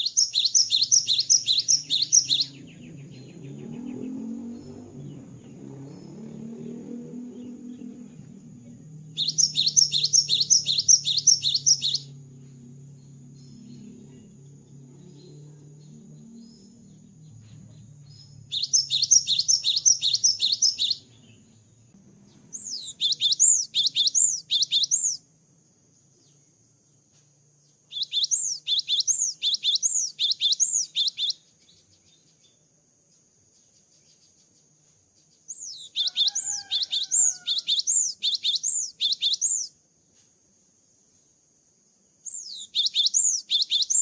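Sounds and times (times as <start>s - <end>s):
bird whistling song: 0.0s - 13.9s, 15.9s - 21.6s, 22.2s - 25.2s, 27.9s - 32.6s, 35.4s - 39.8s, 42.2s - 44.0s.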